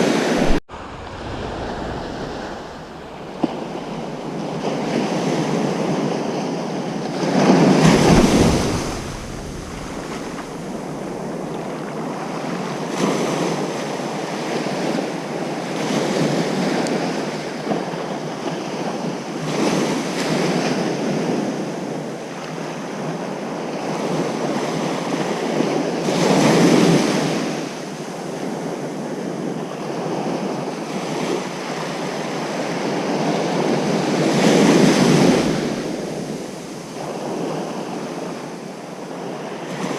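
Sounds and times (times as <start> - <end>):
ocean surf washing onto beach: 0.0 - 6.4, 7.3 - 12.2, 33.8 - 39.9.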